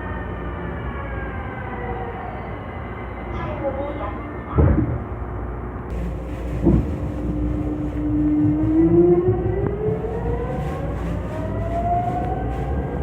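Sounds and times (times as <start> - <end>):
train running gear rumble: 5.9 - 13.0
train traction motor whine: 5.9 - 13.0.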